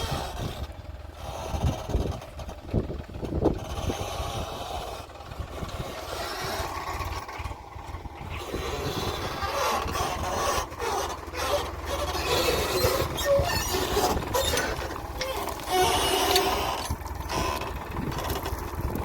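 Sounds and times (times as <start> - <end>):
diesel engine running: 0.0 - 19.0
bucket scraping and clattering: 9.3 - 18.8.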